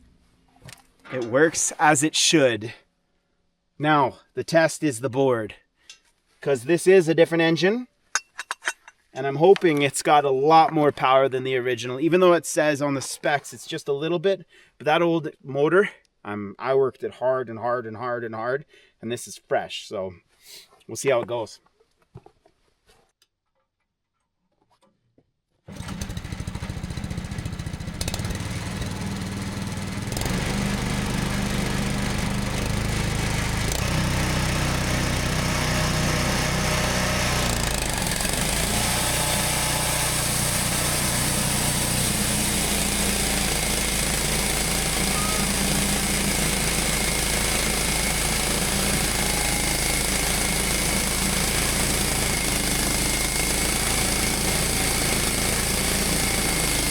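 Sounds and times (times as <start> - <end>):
sawmill engine running: 25.7 - 56.9
saw blade cutting wood: 30.1 - 56.9.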